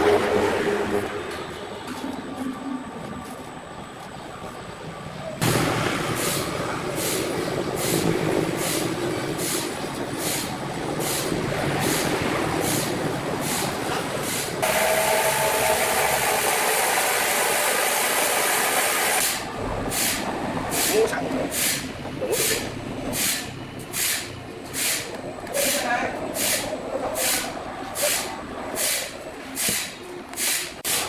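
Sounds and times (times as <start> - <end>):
sawmill machinery running: 5.4 - 21.8.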